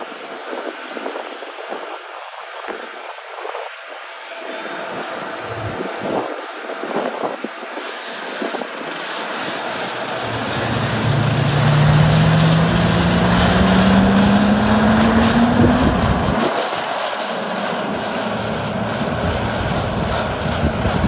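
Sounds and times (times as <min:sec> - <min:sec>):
propeller airplane engines: 0:04.4 - 0:21.0.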